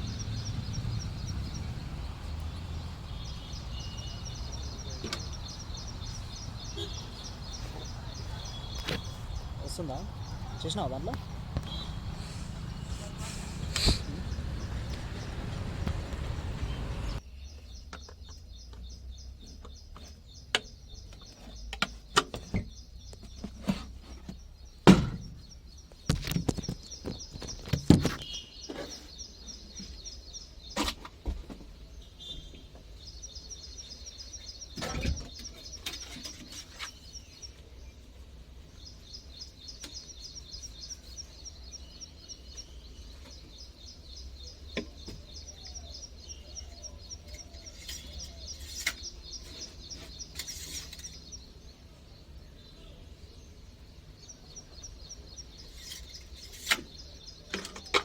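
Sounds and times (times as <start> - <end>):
bird chirping in a fast trill: 0.0 - 12.8, 38.8 - 51.6
sharp knocks and clanks: 19.6 - 25.4.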